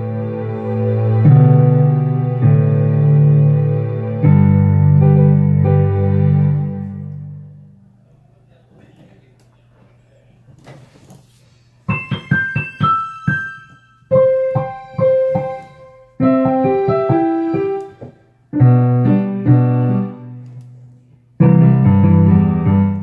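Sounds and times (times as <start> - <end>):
piano phrases: 0.0 - 8.2, 11.8 - 23.0.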